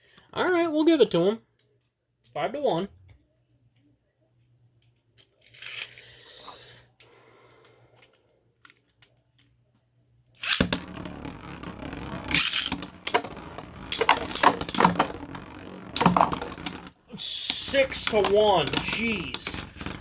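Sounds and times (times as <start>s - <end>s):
spinning tops clashing: 10.4s - 20.0s.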